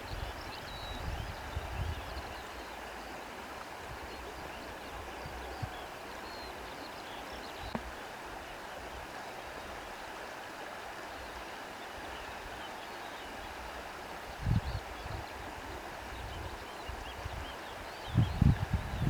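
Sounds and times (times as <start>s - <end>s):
wind rustling through reeds: 13.5s - 19.0s.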